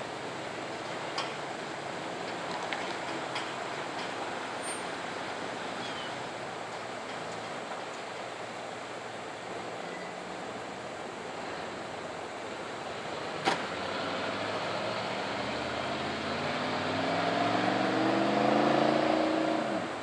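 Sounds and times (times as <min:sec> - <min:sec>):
steady rushing background noise: 0:00.0 - 0:16.3
car engine accelerating: 0:13.7 - 0:20.0.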